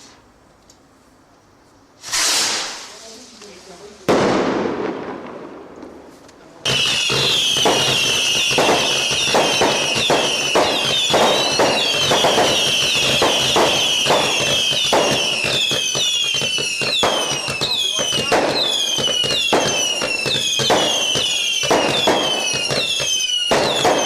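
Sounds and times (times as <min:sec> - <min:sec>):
firework bang: 0:02.0 - 0:03.1, 0:04.0 - 0:06.1, 0:06.7 - 0:24.0
whistling fireworks: 0:02.0 - 0:05.7, 0:06.6 - 0:24.0
rapid crackling bangs: 0:06.6 - 0:24.0.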